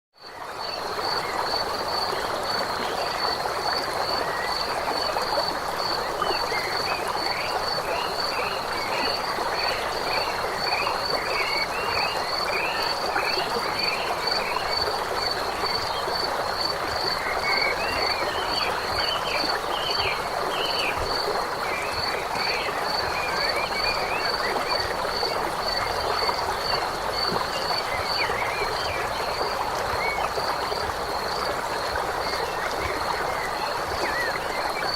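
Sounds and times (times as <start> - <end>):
frogs croaking: 0.2 - 34.9.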